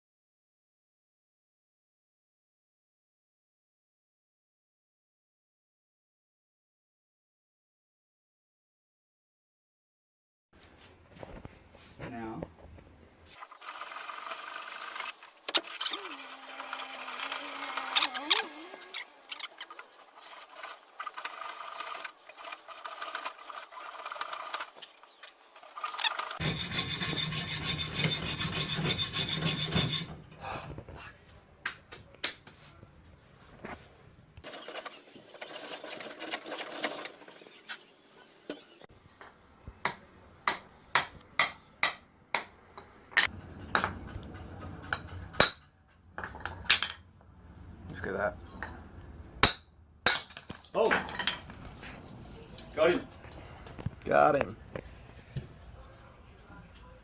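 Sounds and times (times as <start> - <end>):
hand tools scraping on metal: 13.3 - 30.2.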